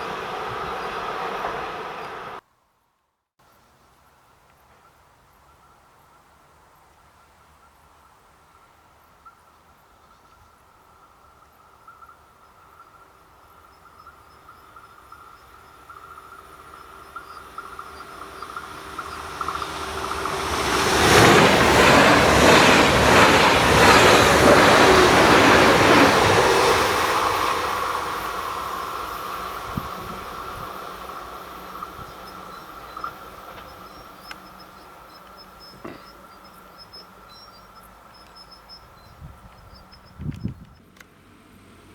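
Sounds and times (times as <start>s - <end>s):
train passing: 0.0s - 2.4s, 8.5s - 41.9s
wheels clattering over rails: 0.0s - 2.4s, 14.1s - 41.1s.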